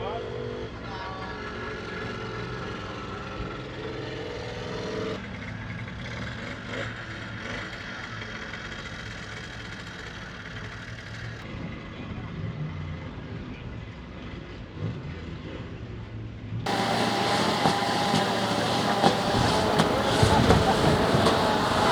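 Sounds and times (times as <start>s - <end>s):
truck engine running: 16.7s - 21.9s.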